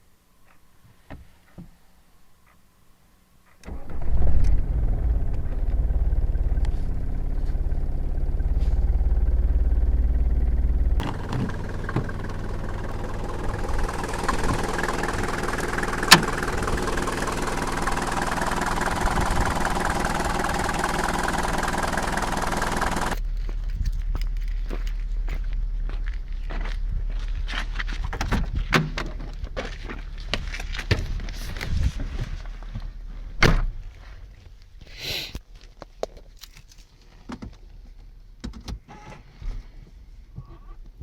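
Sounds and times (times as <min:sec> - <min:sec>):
diesel engine starting: 0:03.6 - 0:25.9
diesel engines idling: 0:03.6 - 0:27.4.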